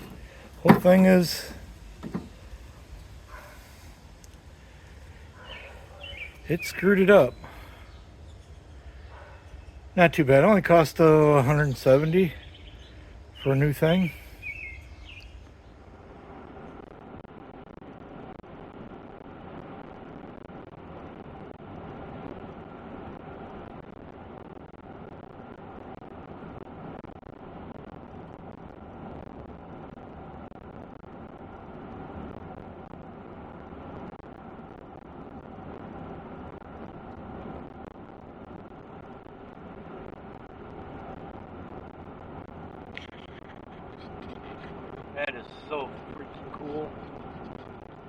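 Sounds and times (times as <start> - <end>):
truck road and engine rumble: 0.0 - 4.6.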